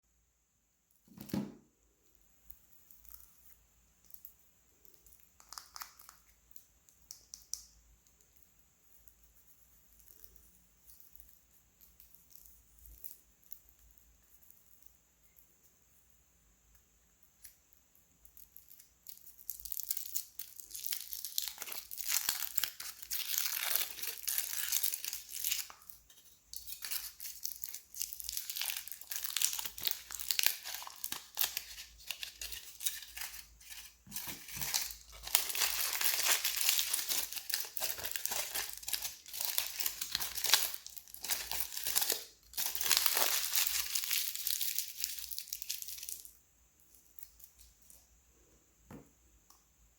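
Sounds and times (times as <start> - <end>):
wrappers tearing and crinkling: 18.6 - 46.3.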